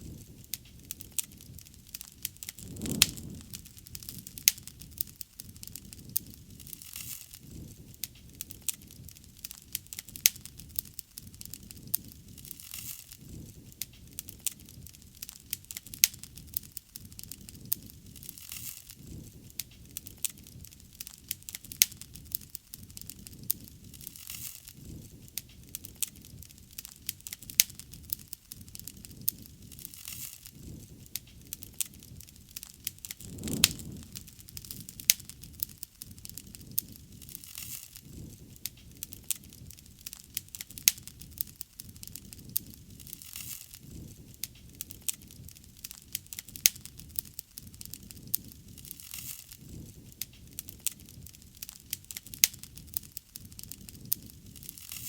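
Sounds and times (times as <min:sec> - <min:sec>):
fire popping and crackling: 0:00.0 - 0:55.0
rush of flame: 0:01.0 - 0:05.5, 0:32.8 - 0:36.4.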